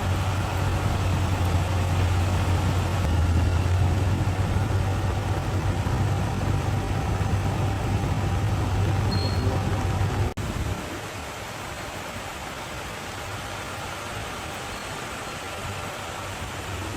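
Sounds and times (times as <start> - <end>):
bulldozer diesel engine droning: 0.0 - 10.9.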